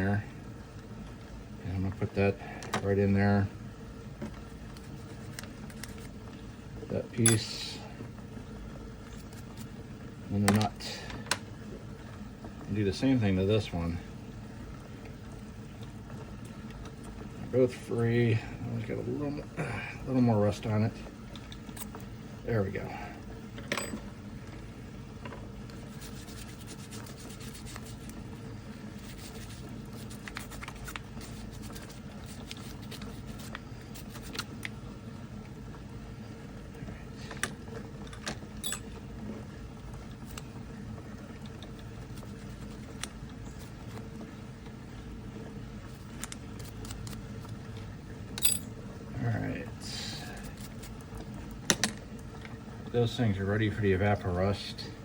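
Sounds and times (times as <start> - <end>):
small metal parts clinking: 38.6 - 38.9, 48.4 - 48.7.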